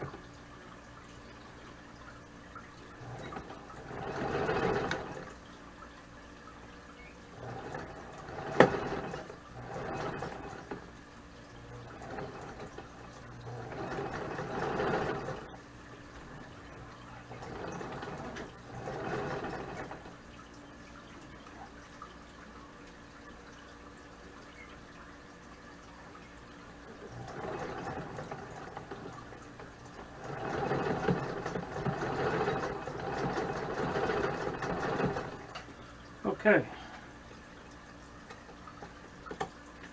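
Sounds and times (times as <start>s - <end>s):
sewing machine stitching: 2.9s - 5.4s, 7.3s - 10.9s, 11.6s - 20.2s, 26.9s - 35.7s.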